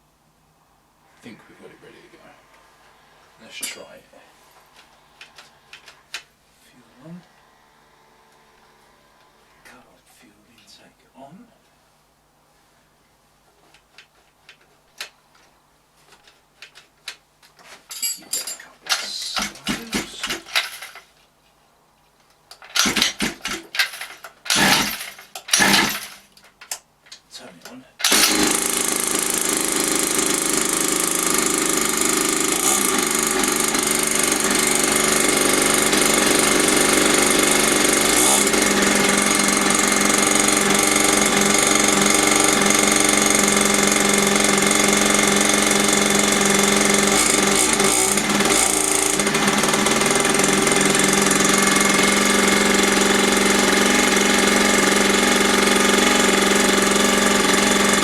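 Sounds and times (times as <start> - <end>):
two-stroke dirt bike engine idling: 24.5 - 25.0, 28.1 - 58.0.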